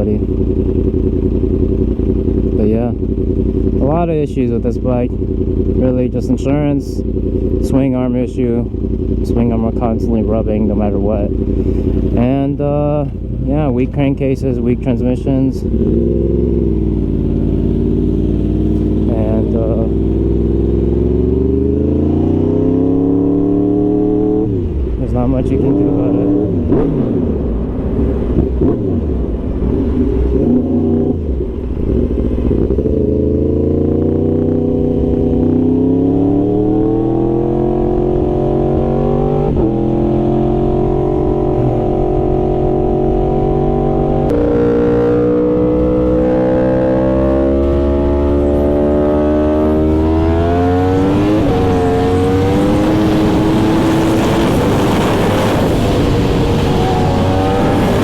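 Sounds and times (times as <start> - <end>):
motorcycle engine accelerating: 0.0 - 58.0
wind rush: 50.0 - 58.0.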